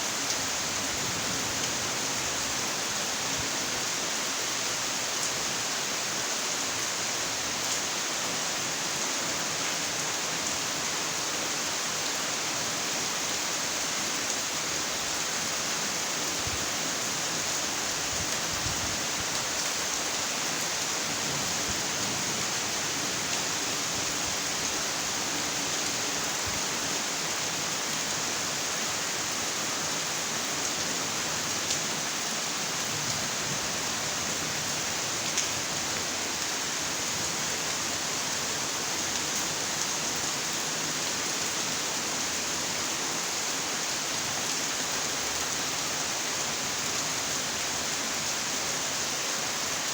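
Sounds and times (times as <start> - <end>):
steady rain hiss: 0.0 - 49.9.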